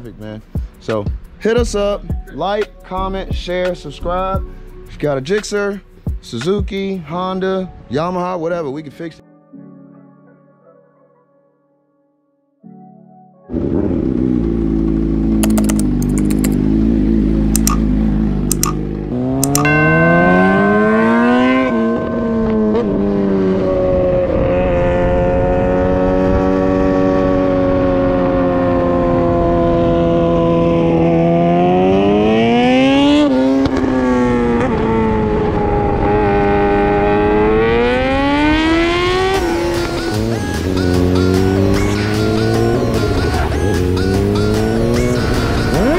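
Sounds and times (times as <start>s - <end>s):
motorcycle engine accelerating: 13.5s - 45.9s.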